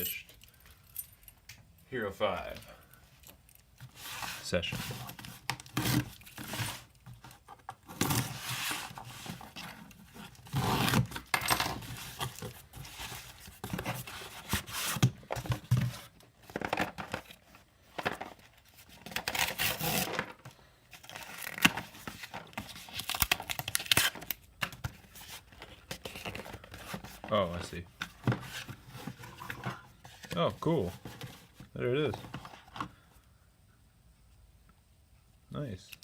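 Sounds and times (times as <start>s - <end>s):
packaging tearing and crinkling: 21.0s - 24.4s.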